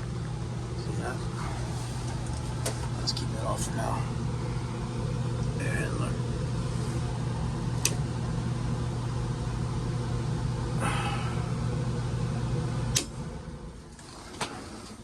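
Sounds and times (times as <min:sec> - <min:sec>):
blower motor humming: 0:00.0 - 0:15.0
switch click: 0:12.9 - 0:13.1.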